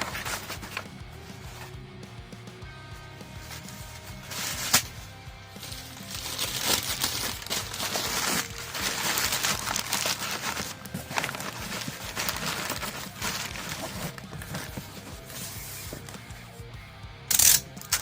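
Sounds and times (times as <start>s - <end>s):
packing material rustling: 6.0s - 16.1s.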